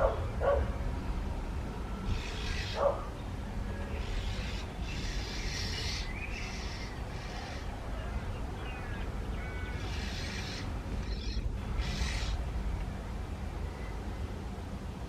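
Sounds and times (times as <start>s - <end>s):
steady low rumble: 0.0s - 15.0s
birds making harsh calls: 1.9s - 12.6s.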